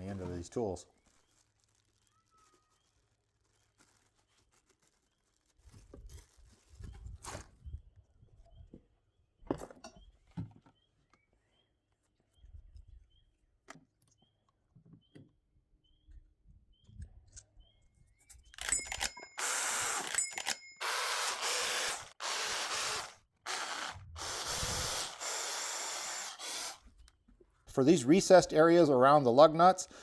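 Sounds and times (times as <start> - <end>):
electric drill sanding metal: 18.6 - 26.9.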